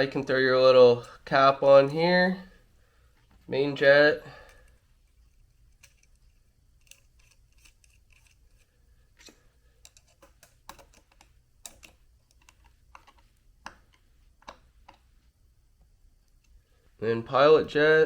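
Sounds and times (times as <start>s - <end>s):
steady low hum: 0.0s - 18.0s
small metal parts clicking: 4.4s - 13.3s.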